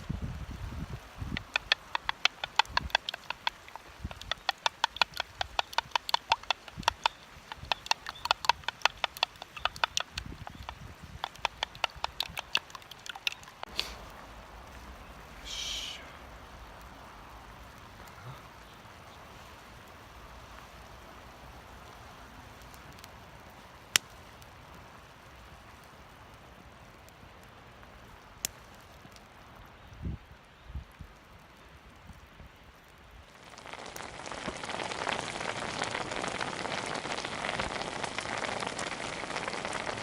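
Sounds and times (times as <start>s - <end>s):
wood fire hissing and popping: 0.0s - 40.0s
light ticks: 1.3s - 14.9s, 27.4s - 30.0s.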